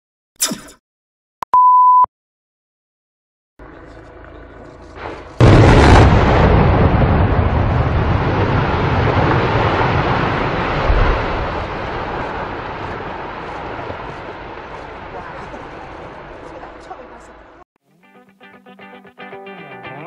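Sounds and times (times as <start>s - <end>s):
low rumble of collapsing building: 3.6s - 17.6s
loud demolition blast: 5.0s - 16.4s.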